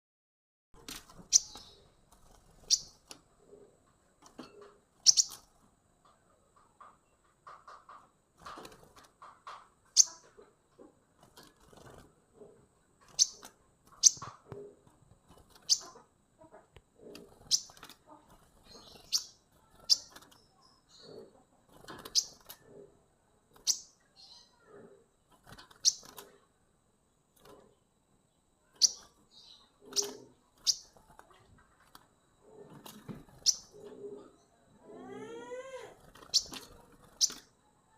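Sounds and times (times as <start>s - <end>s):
soft low chirping: 1.1s - 5.5s, 13.0s - 14.7s, 17.0s - 24.9s, 27.4s - 37.9s.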